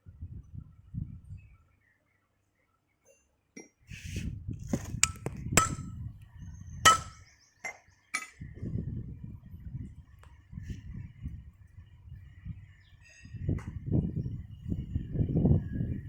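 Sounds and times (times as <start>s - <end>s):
metal-on-metal taps ringing: 5.0s - 5.9s, 6.9s - 8.4s.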